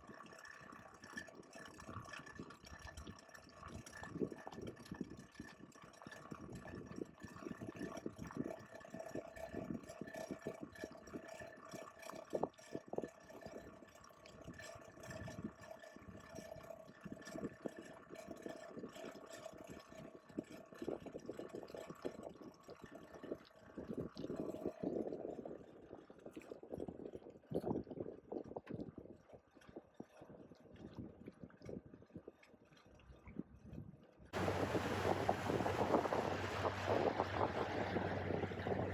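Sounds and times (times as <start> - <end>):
steady mechanical hum: 34.4 - 38.9
water splashing and gurgling: 34.4 - 38.9.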